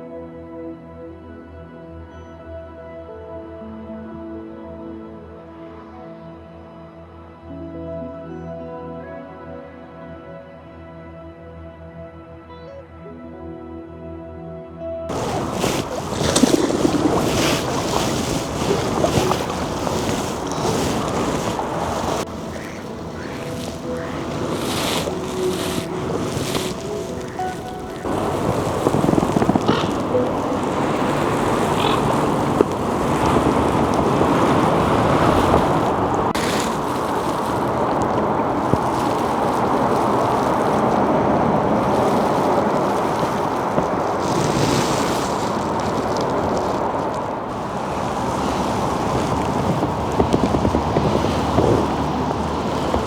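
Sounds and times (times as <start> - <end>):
rushing water: 15.1 - 53.0
wind noise: 15.1 - 53.0.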